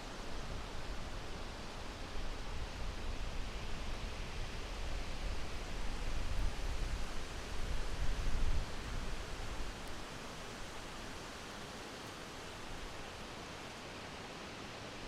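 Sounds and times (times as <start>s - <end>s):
wind blowing in gusts: 0.2s - 10.8s.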